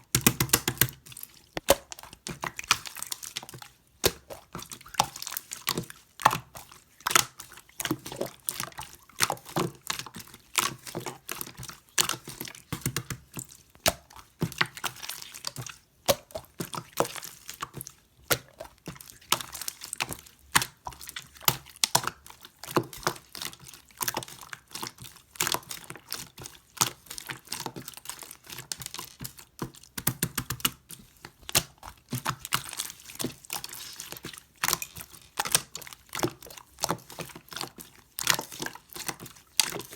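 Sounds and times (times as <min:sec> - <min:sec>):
slime squished by hand popping: 0:01.6 - 0:02.0.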